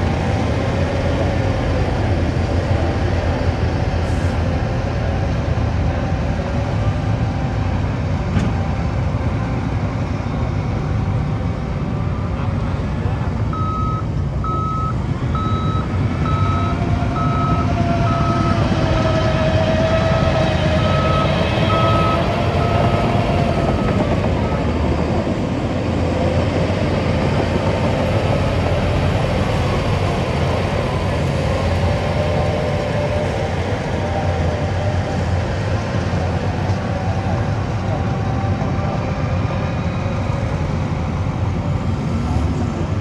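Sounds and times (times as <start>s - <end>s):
diesel engine running under load: 0.0s - 43.0s
reversing alarm beeping: 13.5s - 19.1s, 20.0s - 24.8s.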